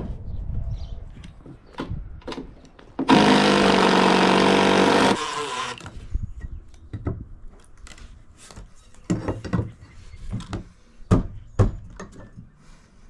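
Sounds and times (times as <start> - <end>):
power tool running: 3.0 - 5.9.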